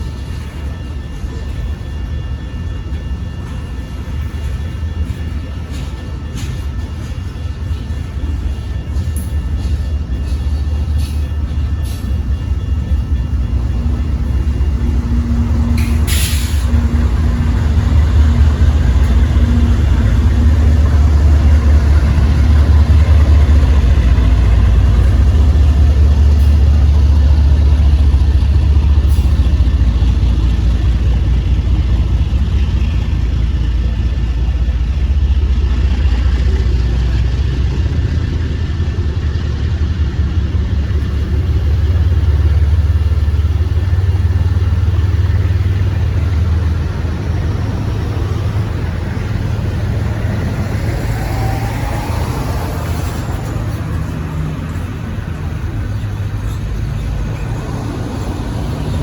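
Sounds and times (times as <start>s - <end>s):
diesel locomotive rumbling: 0.0s - 59.0s
air hiss: 15.8s - 16.7s.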